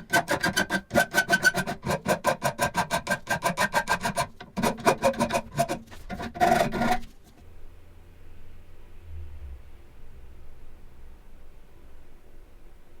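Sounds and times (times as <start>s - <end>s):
file rasping on metal: 0.0s - 7.1s.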